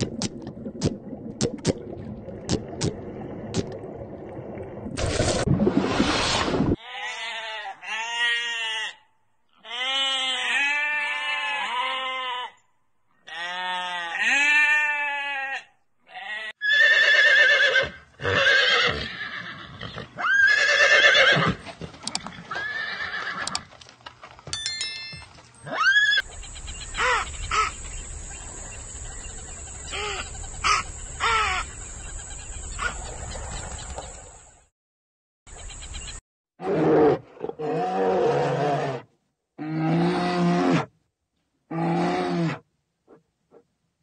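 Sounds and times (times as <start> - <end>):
animal calls: 25.6 - 28.0.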